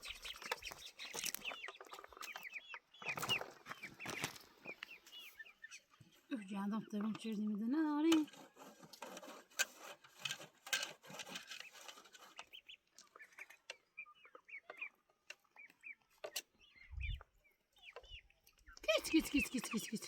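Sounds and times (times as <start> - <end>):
rustling and clicking: 0.0 - 5.2, 8.0 - 13.9
chickens peeping: 0.0 - 8.6, 11.4 - 20.0.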